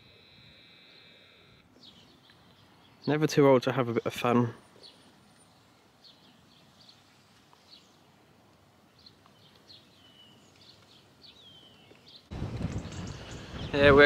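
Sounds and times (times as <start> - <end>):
falling whistled bird calls: 12.4 - 14.0.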